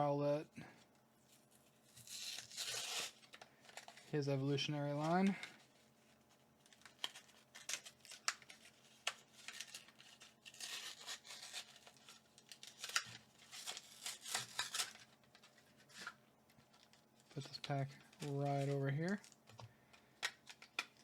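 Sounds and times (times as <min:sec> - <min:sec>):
crinkling plastic: 0:00.7 - 0:21.0
card tearing: 0:01.9 - 0:04.2, 0:06.7 - 0:16.2.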